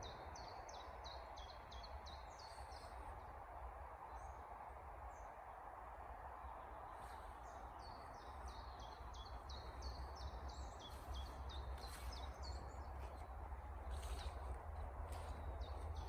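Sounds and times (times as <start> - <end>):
songbird chirping: 6.6 - 16.0.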